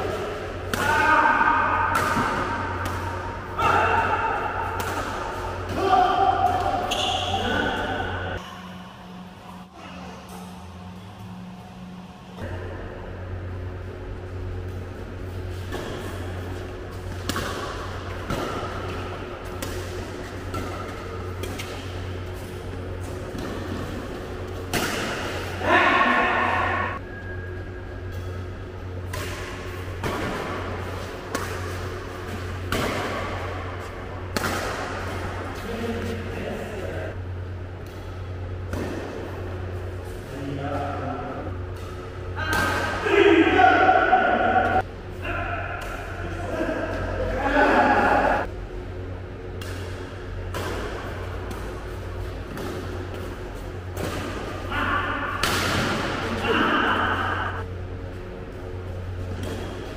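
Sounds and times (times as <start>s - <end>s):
steady low hum: 0.0s - 59.9s
racket hitting shuttlecock: 0.1s - 8.4s, 15.4s - 27.0s, 28.1s - 36.2s, 37.8s - 39.8s, 41.7s - 46.2s, 49.5s - 57.7s, 59.2s - 59.9s.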